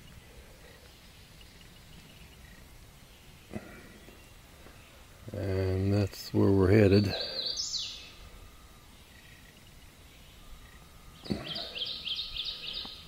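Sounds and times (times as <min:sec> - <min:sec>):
repeated high bird chirps: 0:07.2 - 0:08.3, 0:09.0 - 0:13.0.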